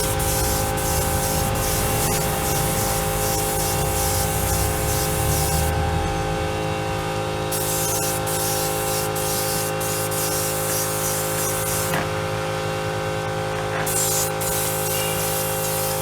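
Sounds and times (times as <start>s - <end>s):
spray gun hissing: 0.0s - 5.7s, 7.5s - 12.0s, 13.9s - 16.0s
steady hum: 0.0s - 13.3s.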